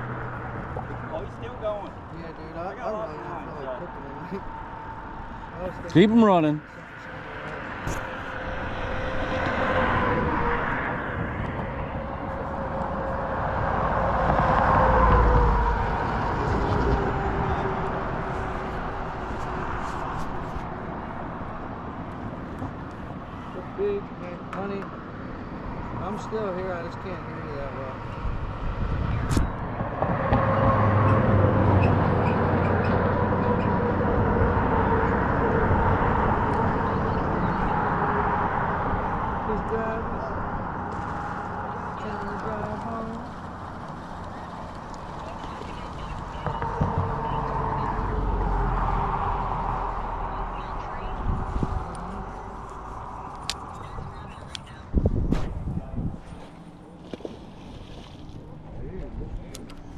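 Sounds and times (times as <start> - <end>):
distant engine drone: 0.0 - 59.9.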